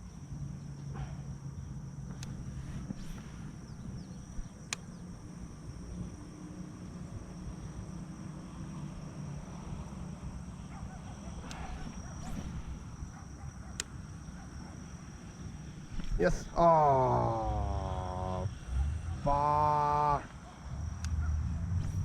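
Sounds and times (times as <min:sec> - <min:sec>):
high-pitched insect chorus: 0:00.0 - 0:22.0
sharp clicks: 0:02.1 - 0:03.4, 0:04.2 - 0:05.0, 0:11.4 - 0:12.8, 0:21.0 - 0:21.2.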